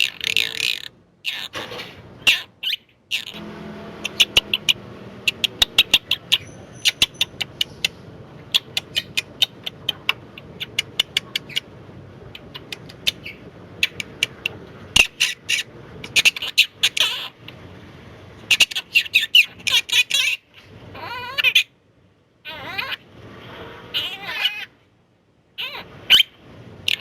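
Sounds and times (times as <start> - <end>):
parrot calling and chirping: 0.0 - 1.6, 2.2 - 17.7, 18.4 - 21.8, 22.4 - 23.1, 23.9 - 24.8, 25.6 - 27.0.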